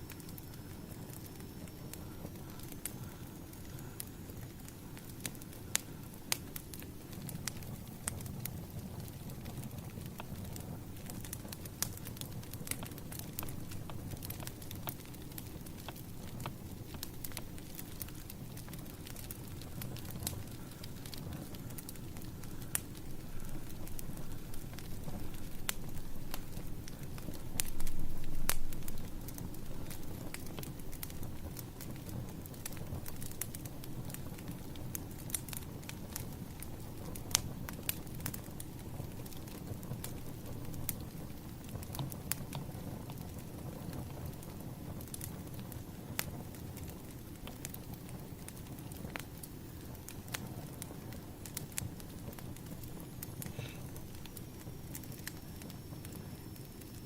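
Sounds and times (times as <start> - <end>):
fire flame rumble: 0.0 - 57.0
firewood crackling and popping: 0.0 - 57.0.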